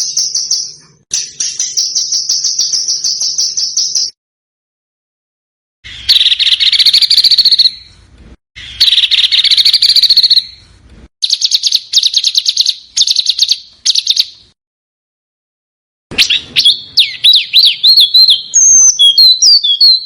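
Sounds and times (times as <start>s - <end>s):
songbird trilling: 11.2s - 14.4s, 16.2s - 20.0s.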